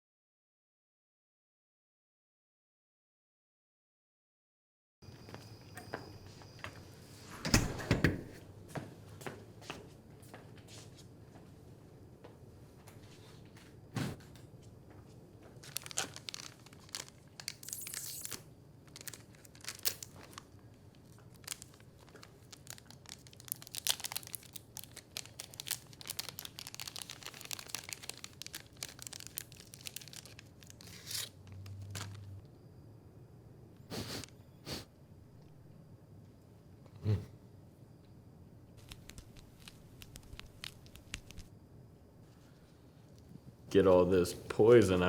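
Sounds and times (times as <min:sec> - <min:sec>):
crinkling and tearing: 0:15.6 - 0:32.3, 0:38.8 - 0:41.5.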